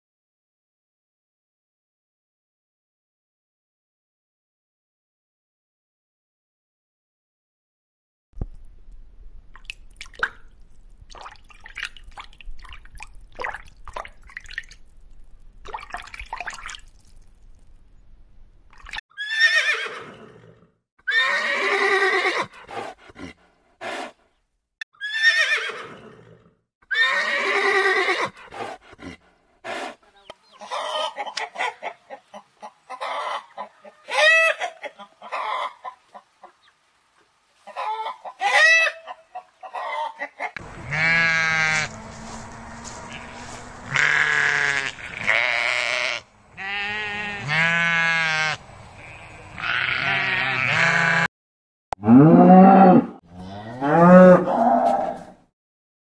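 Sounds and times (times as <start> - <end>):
horses whinnying: 19.2 - 22.6, 25.0 - 28.5, 40.6 - 51.3
chickens clucking and squawking: 30.0 - 36.7, 37.6 - 44.0.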